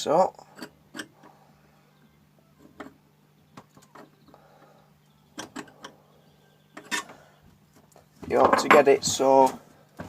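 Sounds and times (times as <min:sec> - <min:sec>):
metal tools clicking and tapping: 0:00.5 - 0:01.3, 0:05.3 - 0:06.0, 0:06.7 - 0:07.2.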